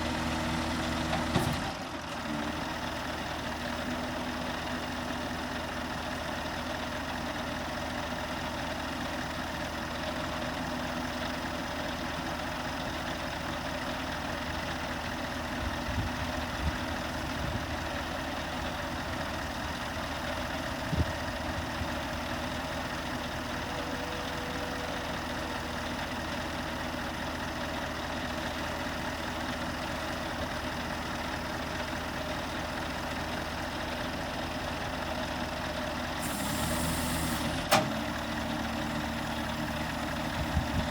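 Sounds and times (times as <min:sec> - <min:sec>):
engine idling: 0:00.0 - 0:40.9.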